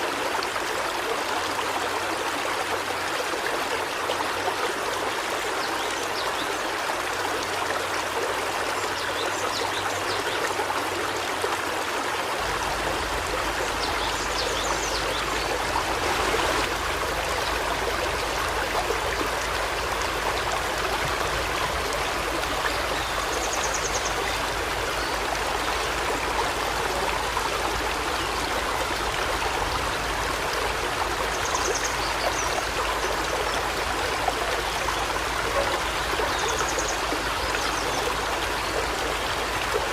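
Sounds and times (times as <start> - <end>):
river stream rushing: 6.1 - 39.9.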